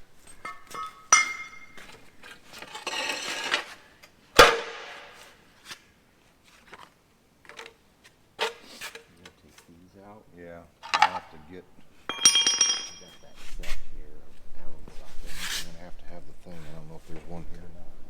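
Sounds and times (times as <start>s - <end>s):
metal tools clanking: 0.2s - 3.8s, 10.8s - 11.5s, 12.1s - 13.4s
loud metal clang: 4.4s - 5.2s
loose metal rattling: 12.1s - 13.2s.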